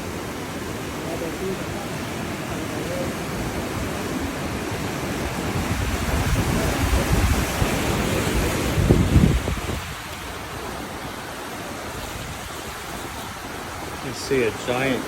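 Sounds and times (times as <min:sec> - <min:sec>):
sea surf: 0:00.0 - 0:15.0
wind buffeting microphone: 0:02.6 - 0:14.1.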